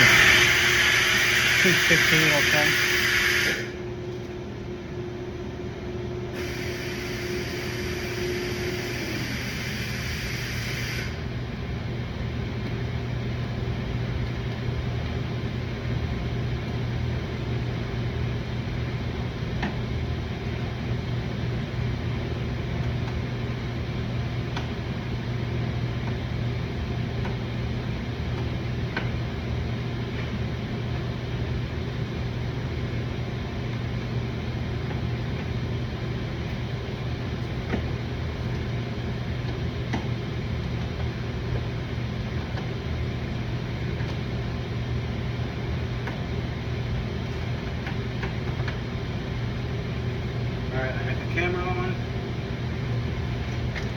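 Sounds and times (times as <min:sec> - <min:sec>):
low mechanical hum: 0:00.0 - 0:53.9.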